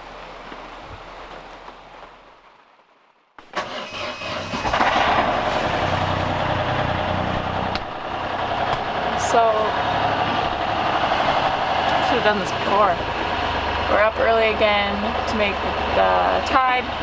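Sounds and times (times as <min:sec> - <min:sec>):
boat engine starting: 0:03.4 - 0:17.0.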